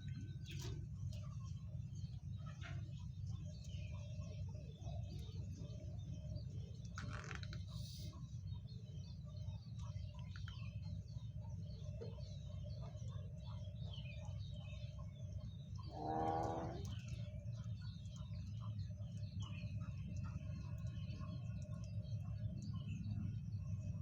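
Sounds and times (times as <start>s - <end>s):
birds chirping: 0.0s - 24.0s
steady low hum: 0.0s - 24.0s
loud pitched bird call: 15.9s - 16.9s.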